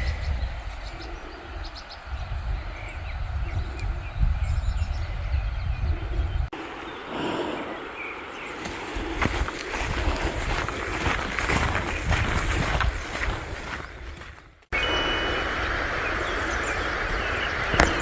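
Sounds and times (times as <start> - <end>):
wind buffeting microphone: 0.0 - 18.0
rain hissing: 14.7 - 18.0.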